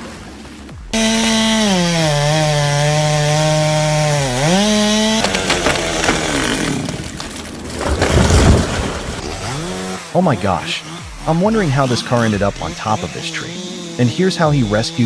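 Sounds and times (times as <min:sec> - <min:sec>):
chainsaw engine cutting: 0:00.9 - 0:15.0
rough noisy sound: 0:04.5 - 0:10.0.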